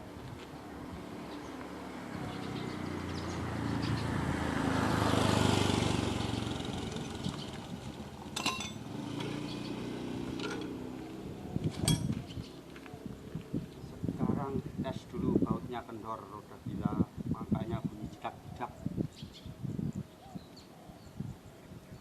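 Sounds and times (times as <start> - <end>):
engine running: 3.0 - 12.0
sharp metallic clinks: 8.3 - 9.4, 10.3 - 10.8, 11.8 - 12.2.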